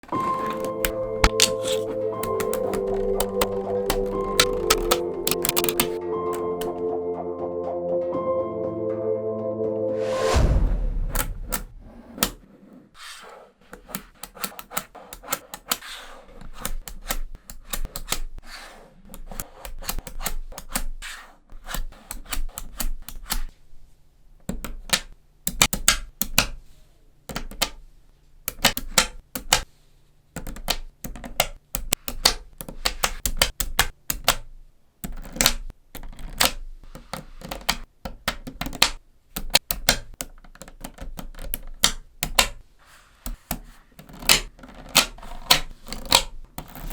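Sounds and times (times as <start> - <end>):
magnetic balls clicking together: 0.0 - 6.0.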